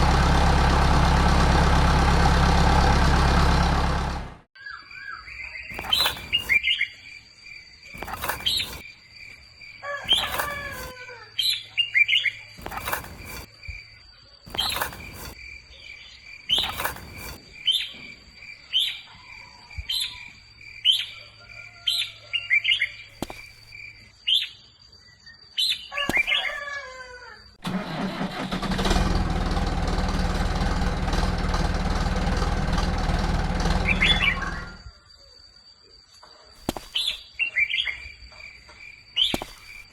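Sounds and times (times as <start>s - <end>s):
small birds chirping: 4.6s - 26.6s, 33.6s - 39.9s.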